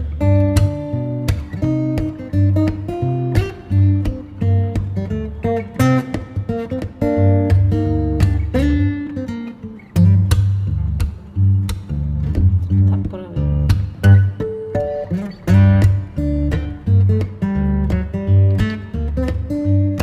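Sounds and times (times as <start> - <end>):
acoustic guitar piece: 0.0 - 20.0
steady bass beat: 10.1 - 14.4.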